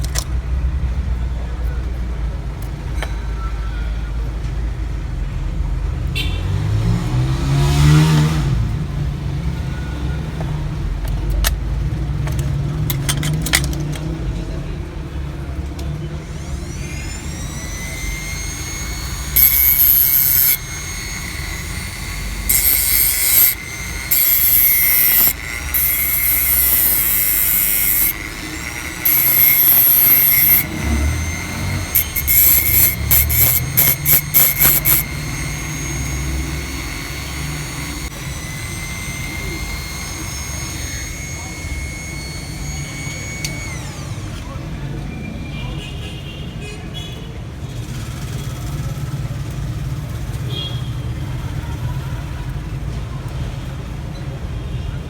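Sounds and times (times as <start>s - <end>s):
small motor high whine: 16.2s - 44.6s.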